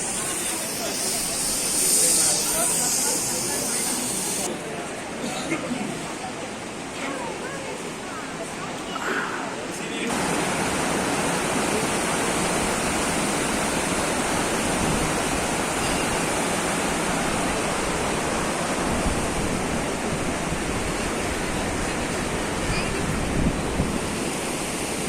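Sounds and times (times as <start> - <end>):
river water rushing: 10.1 - 25.0.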